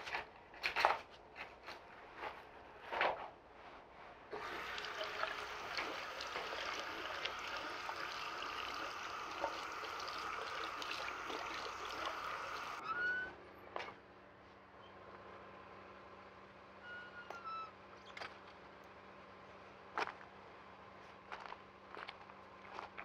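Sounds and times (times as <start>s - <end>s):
tap water running into sink: 4.4s - 12.8s.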